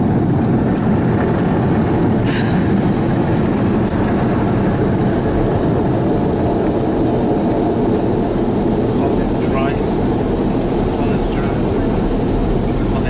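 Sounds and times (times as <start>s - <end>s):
car wash blower dryers: 0.0s - 13.0s.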